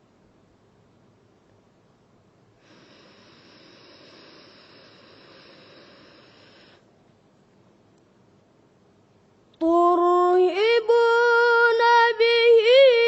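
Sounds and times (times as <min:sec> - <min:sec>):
hissing in-breath: 0:02.6 - 0:06.8.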